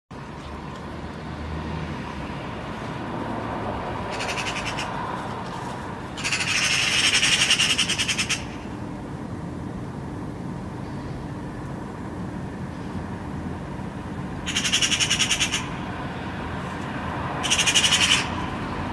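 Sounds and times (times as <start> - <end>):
bird chattering rattle: 4.1 - 4.9, 6.2 - 8.7, 14.5 - 15.7, 17.4 - 18.4.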